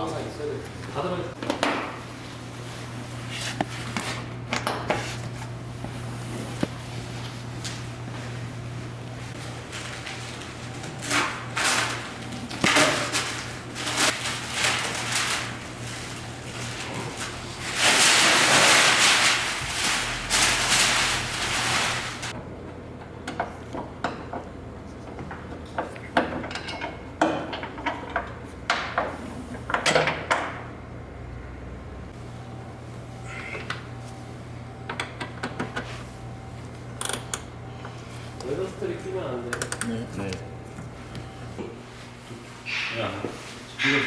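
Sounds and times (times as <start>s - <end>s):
steady low hum: 30.5s - 43.9s.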